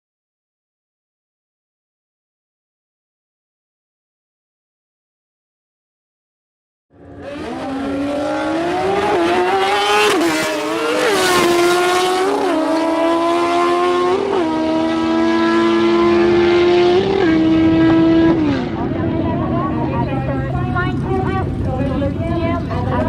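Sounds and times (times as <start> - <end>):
lower engine tone: 6.9 - 23.0
motorcycle accelerating: 6.9 - 23.0.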